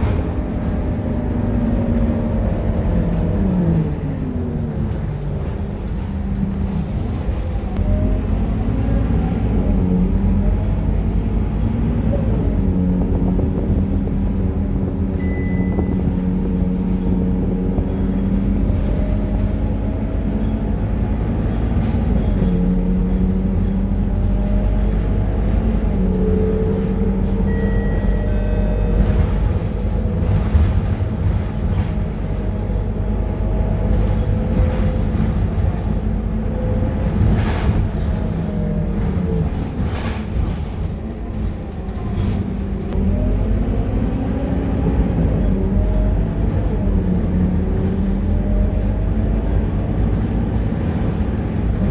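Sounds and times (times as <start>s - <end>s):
bus diesel engine droning: 0.0s - 51.9s
short high beeps: 15.2s - 16.0s, 27.5s - 28.8s.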